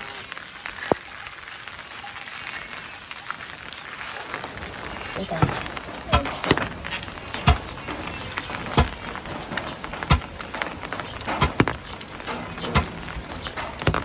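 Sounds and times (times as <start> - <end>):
sharp knocks: 5.4 - 14.0.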